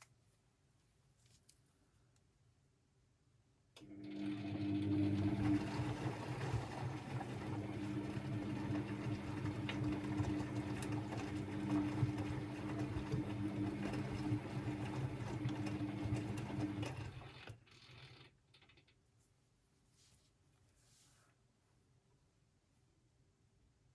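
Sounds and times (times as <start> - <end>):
washing machine motor hum: 3.8 - 18.3.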